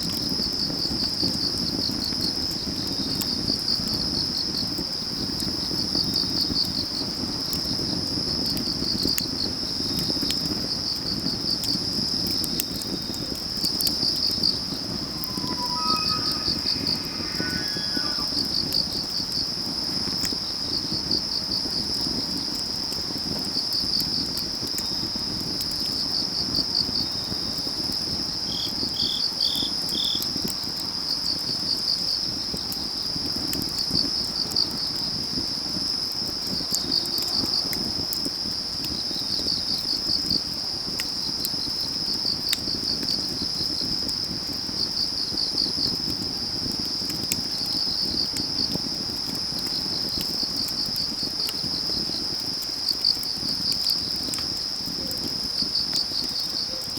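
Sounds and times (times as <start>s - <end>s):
crickets trilling: 0.2s - 56.9s
wood fire crackling: 11.1s - 25.9s, 32.3s - 56.9s
insect chirping in pulses: 13.5s - 20.7s.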